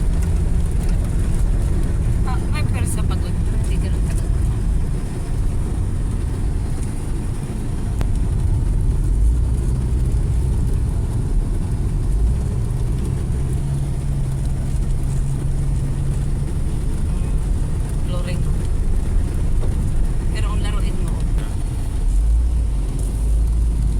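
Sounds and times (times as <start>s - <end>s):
car engine droning: 0.0s - 23.9s
road noise: 0.0s - 23.9s.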